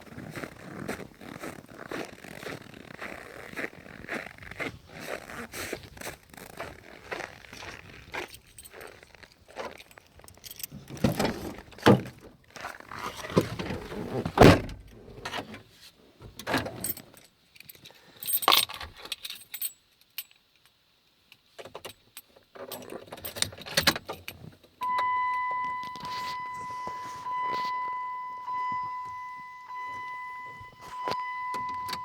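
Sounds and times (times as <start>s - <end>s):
keys jangling: 8.1s - 11.0s, 16.6s - 20.4s.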